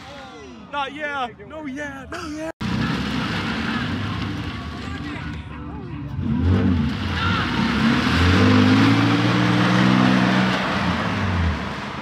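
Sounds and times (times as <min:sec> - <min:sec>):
car engine holding steady revs: 0:06.0 - 0:12.0.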